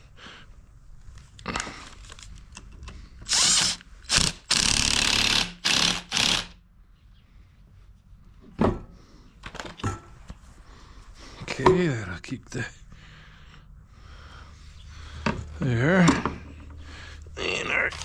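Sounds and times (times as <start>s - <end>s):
power drill bursts: 3.3s - 6.6s.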